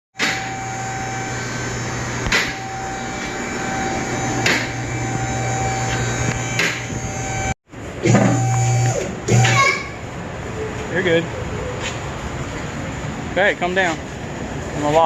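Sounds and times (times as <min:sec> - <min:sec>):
machine hum with faint whine: 0:00.2 - 0:10.8.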